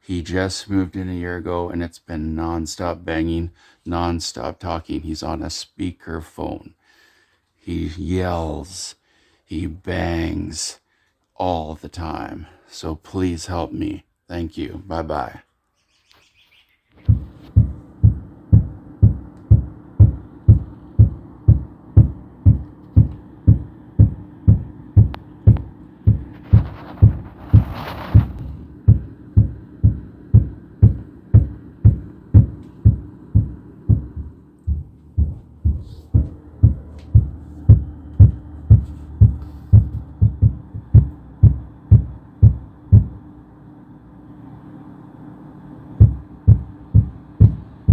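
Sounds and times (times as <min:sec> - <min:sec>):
dull thuds through ceiling: 0:17.1 - 0:43.2, 0:46.0 - 0:47.9.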